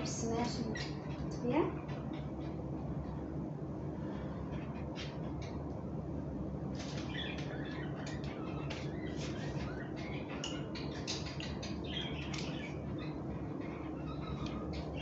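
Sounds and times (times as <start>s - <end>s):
small birds chirping: 0.0s - 3.0s, 6.6s - 15.0s
low background hum: 0.0s - 15.0s.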